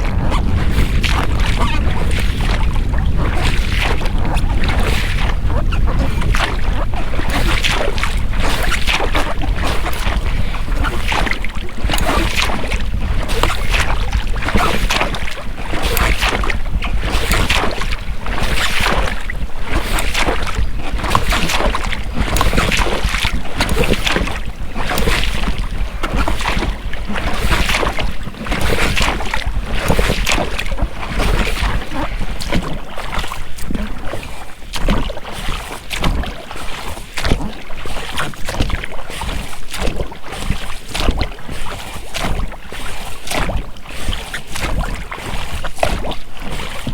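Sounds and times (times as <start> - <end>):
rubber rowlocks creaking: 0.0 - 35.0
oars dipping and splashing: 0.0 - 46.9
wind on microphone: 0.0 - 46.9.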